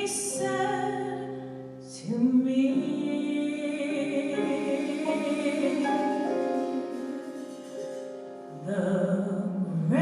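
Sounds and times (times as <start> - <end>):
sustained accompaniment: 3.7 - 8.8.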